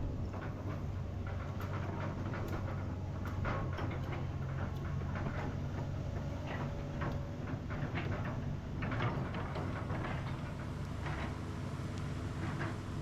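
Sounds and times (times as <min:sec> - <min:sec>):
excavator diesel engine running: 0:00.0 - 0:13.0
irregular clicks and knocks: 0:00.3 - 0:10.4.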